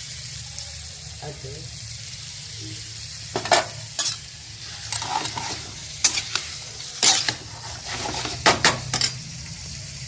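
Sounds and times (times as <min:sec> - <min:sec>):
chicken sizzling in a pan: 0:00.0 - 0:10.0
spatula scraping a pan: 0:03.4 - 0:09.2.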